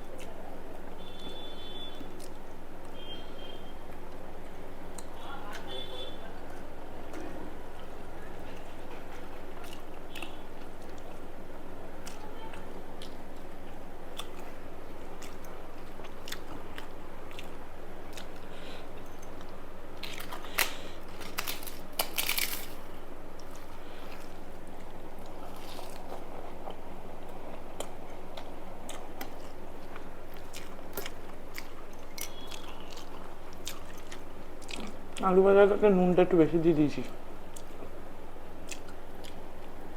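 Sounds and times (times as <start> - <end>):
person chewing food: 8.6 - 11.3, 11.9 - 35.3, 38.6 - 39.9
loud crunches: 20.0 - 23.0.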